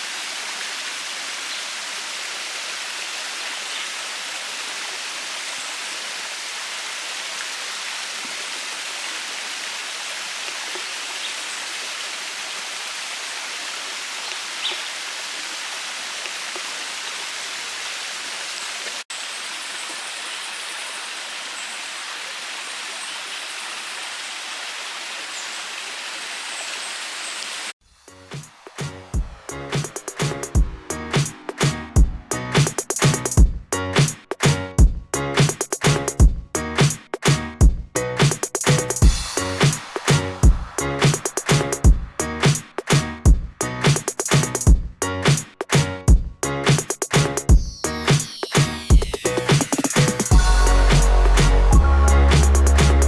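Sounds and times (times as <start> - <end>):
waterfall rushing over rock: 0.0 - 27.7, 39.0 - 42.2.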